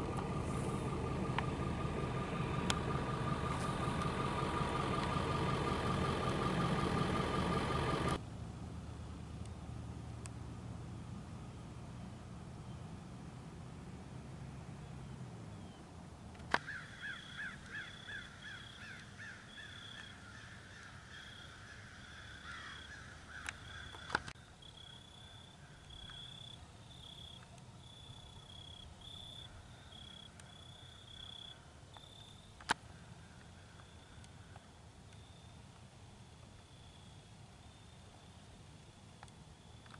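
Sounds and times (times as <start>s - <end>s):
bird calling harsh notes: 16.6s - 24.2s.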